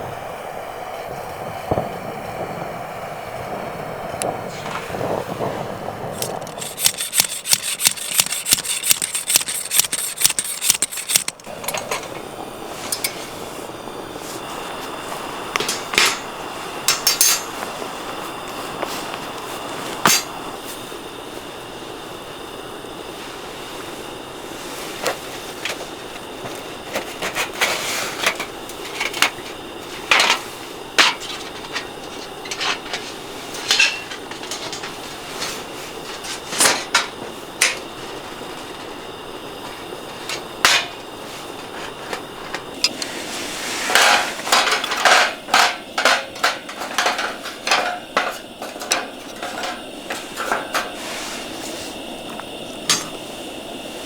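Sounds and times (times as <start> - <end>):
steady background hiss: 0.0 - 54.0
camp gear knocking and clinking: 6.1 - 13.3, 15.5 - 17.8, 26.4 - 38.0, 39.6 - 41.0, 43.9 - 51.0, 52.3 - 53.2.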